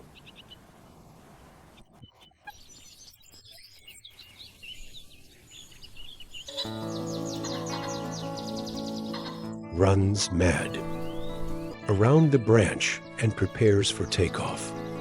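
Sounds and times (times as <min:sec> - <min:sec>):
small birds chirping: 0:00.0 - 0:15.0
music: 0:06.5 - 0:15.0.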